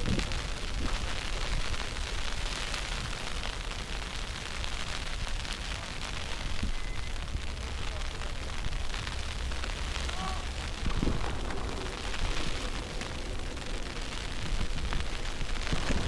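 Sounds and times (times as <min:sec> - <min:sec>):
street noise hiss: 0:00.0 - 0:16.0
wind buffeting microphone: 0:06.3 - 0:16.0.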